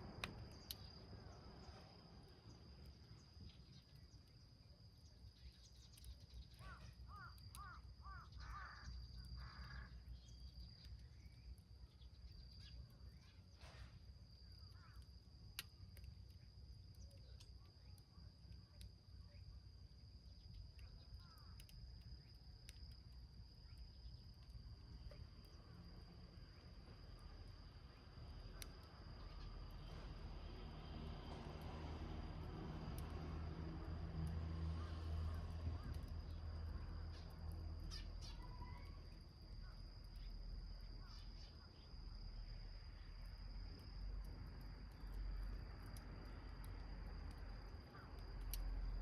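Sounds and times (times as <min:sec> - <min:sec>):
small wood fire crackling: 0:00.0 - 0:49.0
high insect drone: 0:06.6 - 0:11.2.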